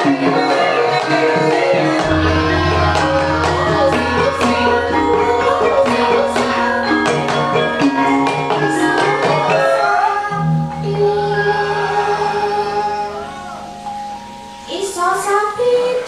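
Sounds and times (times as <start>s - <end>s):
deep gong tone: 2.0s - 8.7s
drum strokes: 2.0s - 9.5s
bronze metallophones ringing: 2.0s - 16.0s.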